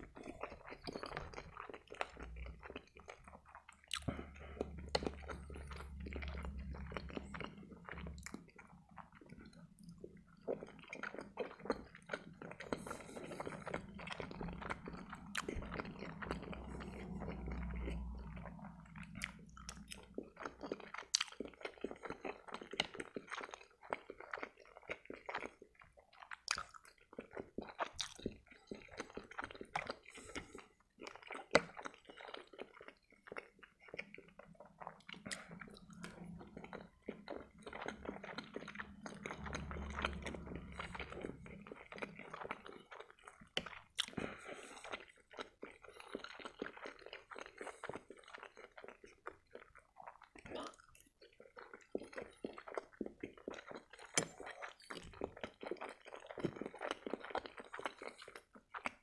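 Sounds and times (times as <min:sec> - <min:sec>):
wet chewing and mouth smacking: 0:00.0 - 0:59.0.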